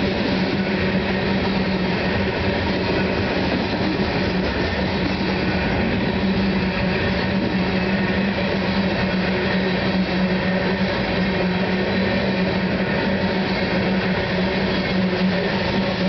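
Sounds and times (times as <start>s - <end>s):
steel wheels rumbling on rails: 0.0s - 16.0s.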